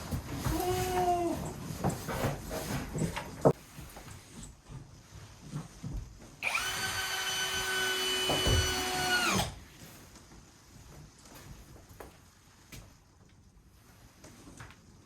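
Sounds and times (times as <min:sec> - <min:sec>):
electric drill whining: 0:06.4 - 0:09.6.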